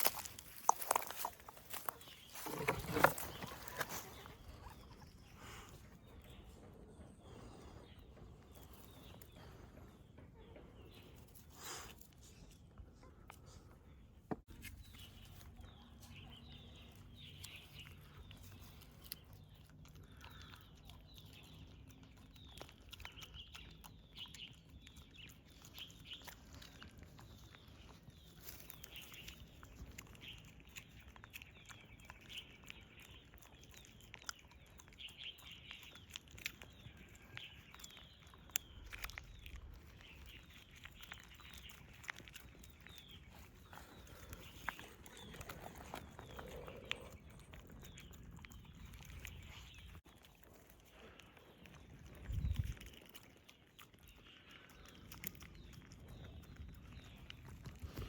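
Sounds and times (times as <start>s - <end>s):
small animals chirping: 14.8s - 58.0s.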